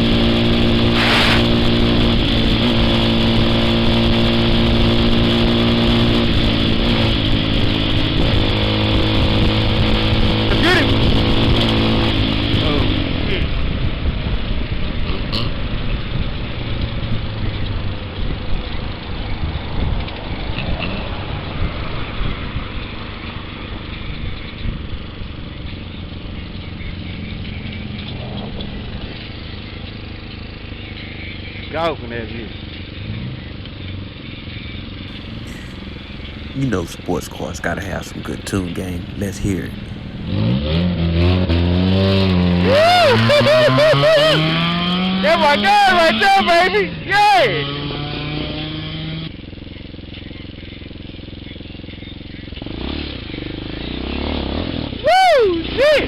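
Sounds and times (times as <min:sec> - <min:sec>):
burst of rushing noise: 0:00.8 - 0:02.0
motorcycle engine running: 0:34.9 - 0:36.6, 0:49.3 - 0:53.9
vehicle engine idling: 0:35.1 - 0:40.5.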